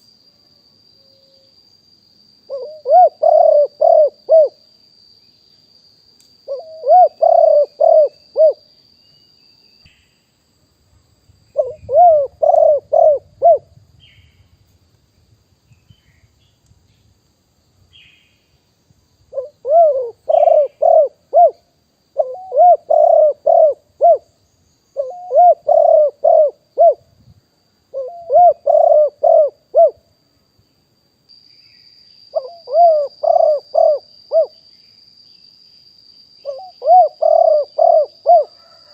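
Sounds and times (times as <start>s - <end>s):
dove cooing: 2.5s - 4.6s, 6.5s - 8.6s, 11.6s - 13.8s, 19.3s - 24.3s, 25.0s - 27.0s, 27.9s - 30.0s, 32.3s - 34.5s, 36.4s - 38.9s.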